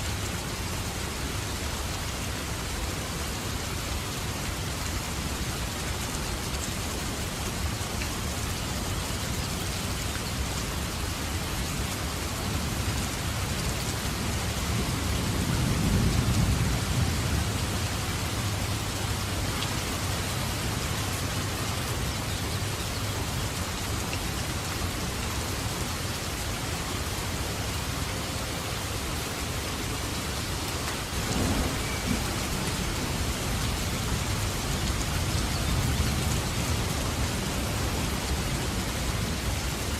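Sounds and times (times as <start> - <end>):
steady rain falling: 0.0 - 39.9
rolling thunder: 31.1 - 38.6.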